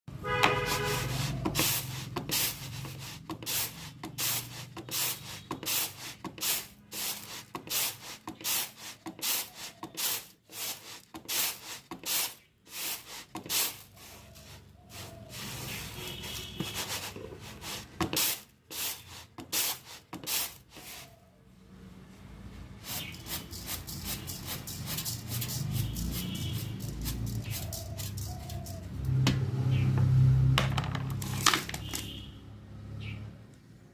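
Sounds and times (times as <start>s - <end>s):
rice grains rustling by hand: 0.5s - 21.2s, 22.7s - 28.6s.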